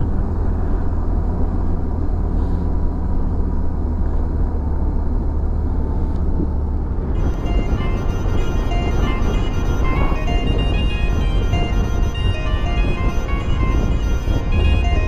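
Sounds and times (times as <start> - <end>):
road noise: 0.0 - 15.0
background music: 7.2 - 15.0.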